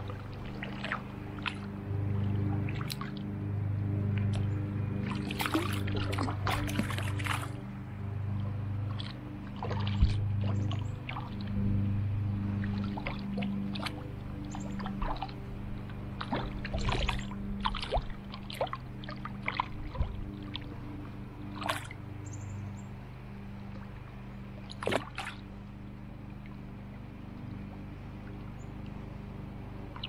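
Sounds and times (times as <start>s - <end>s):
stream water splashing and trickling: 0.0s - 3.4s, 4.0s - 30.0s
low steady hum: 0.0s - 30.0s.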